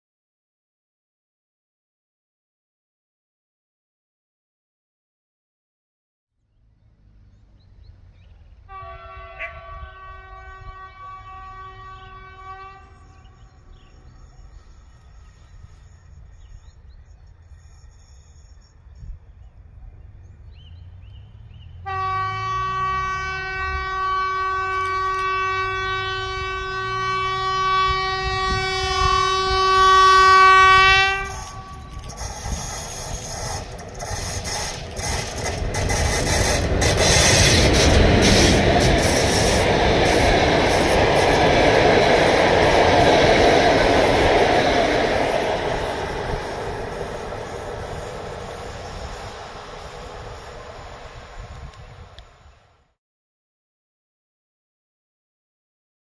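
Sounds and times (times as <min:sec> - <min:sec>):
locomotive horn: 0:08.6 - 0:16.1, 0:21.8 - 0:49.6
train wheels clattering over rails: 0:31.2 - 0:52.0.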